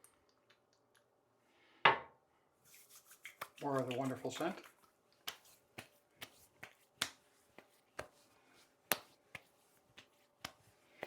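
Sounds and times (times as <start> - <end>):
hands slapping face: 2.7 - 8.2, 8.8 - 11.0.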